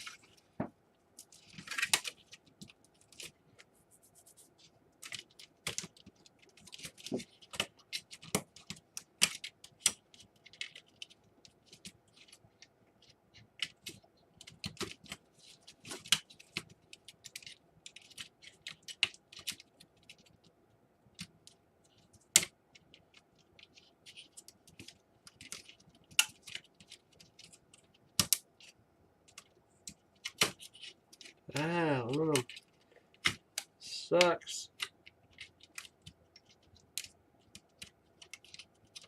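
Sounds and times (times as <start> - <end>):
sharp plastic snaps: 28.2 - 28.7, 29.3 - 39.0.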